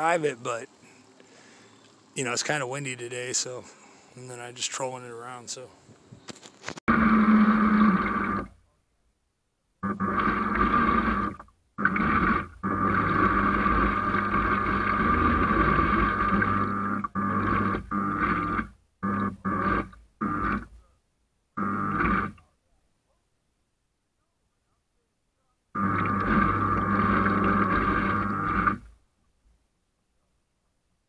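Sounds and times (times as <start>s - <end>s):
boat motor whining: 9.8s - 20.7s, 21.6s - 22.3s, 25.8s - 28.9s.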